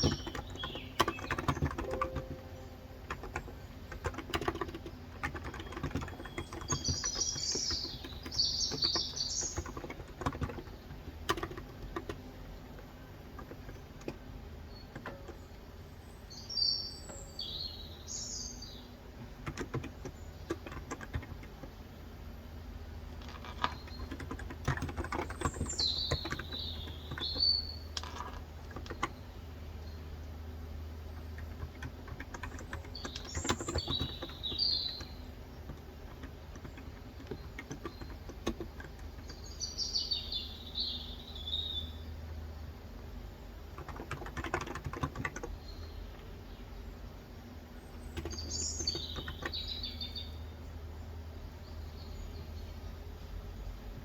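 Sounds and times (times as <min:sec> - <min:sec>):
keyboard keys clicking: 0:00.0 - 0:15.5, 0:19.2 - 0:21.8, 0:23.2 - 0:29.2, 0:31.0 - 0:39.6, 0:43.6 - 0:45.7, 0:48.0 - 0:49.8
birds chirping: 0:00.0 - 0:54.0.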